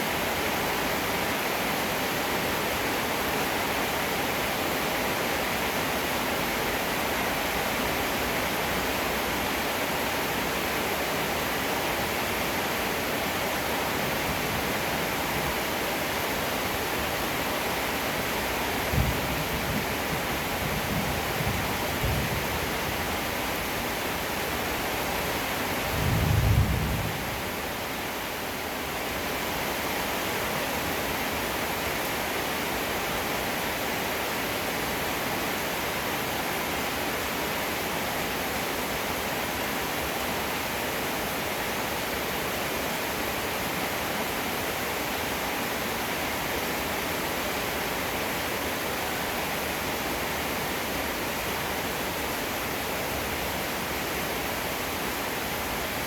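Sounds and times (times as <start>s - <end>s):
heavy rainfall: 0.0s - 56.0s
thunder rumble: 25.9s - 27.3s.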